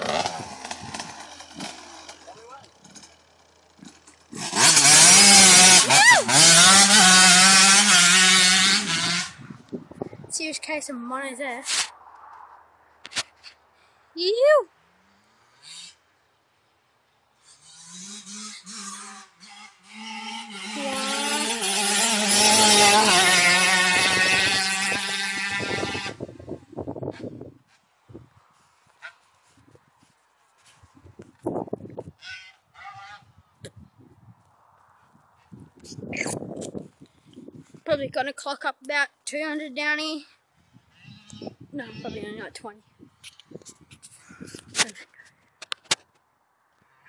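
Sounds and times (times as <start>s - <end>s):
motorbike engine revving high: 0.0s - 3.0s, 3.8s - 9.5s, 17.7s - 26.3s.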